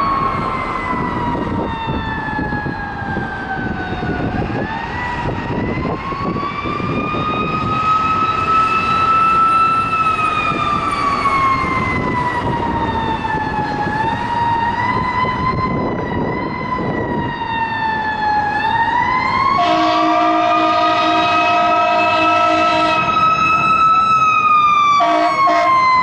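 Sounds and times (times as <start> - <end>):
fire engine siren wailing: 0.0 - 26.0
truck engine and road rumble: 0.0 - 26.0
air horn blast: 19.6 - 23.1, 25.0 - 25.8.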